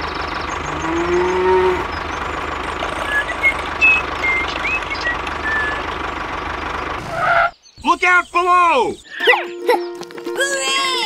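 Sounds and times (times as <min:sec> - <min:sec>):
engine running: 0:00.0 - 0:07.6
short high chirps: 0:09.0 - 0:10.0.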